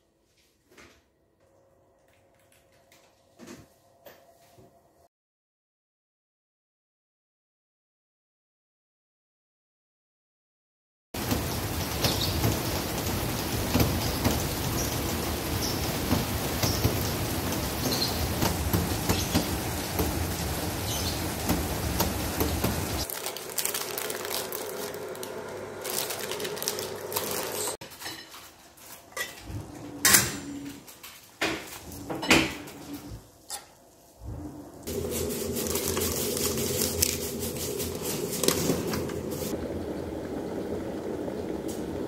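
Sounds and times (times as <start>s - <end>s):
rain on wet pavement: 11.2s - 27.7s, 34.9s - 42.0s.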